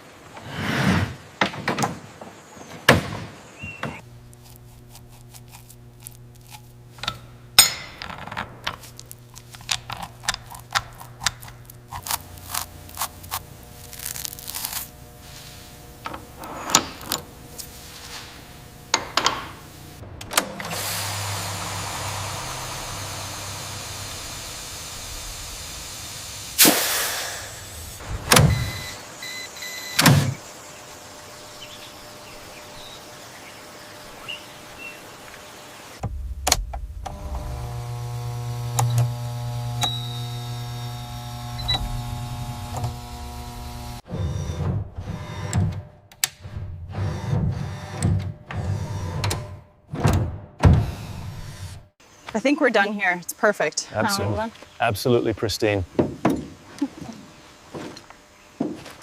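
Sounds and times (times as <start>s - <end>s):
steady hum: 4.0s - 44.0s
even hiss: 13.1s - 44.0s.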